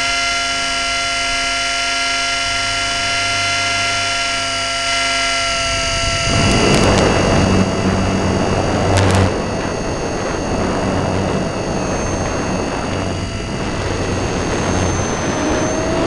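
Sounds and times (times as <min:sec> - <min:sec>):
rc helicopter motor whine: 0:00.0 - 0:16.0
rushing noise with low hum: 0:05.2 - 0:16.0.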